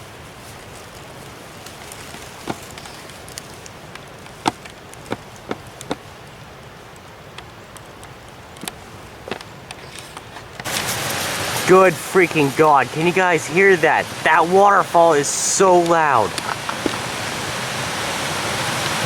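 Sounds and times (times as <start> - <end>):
footsteps on twigs and dry leaves: 0.0 - 6.4, 13.6 - 17.4
waterfall rushing: 10.6 - 19.0.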